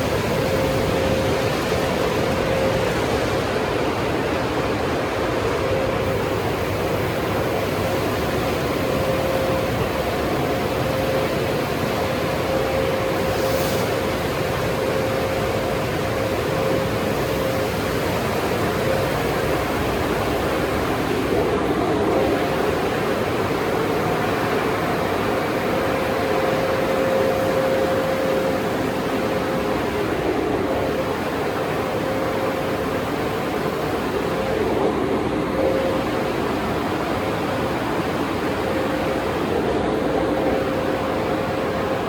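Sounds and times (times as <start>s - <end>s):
car wash machinery: 0.0s - 42.0s
constant mid-pitched hum: 0.0s - 42.0s
spraying water: 12.6s - 15.9s.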